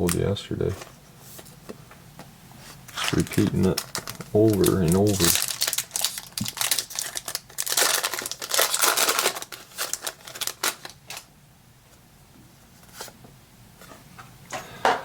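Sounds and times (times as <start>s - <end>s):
cards being handled: 2.9s - 5.4s
foil wrapper crinkling and tearing: 2.9s - 11.3s.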